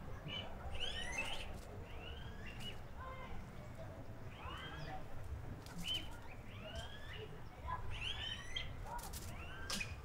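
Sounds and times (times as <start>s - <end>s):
birds chirping and calling: 0.2s - 2.8s.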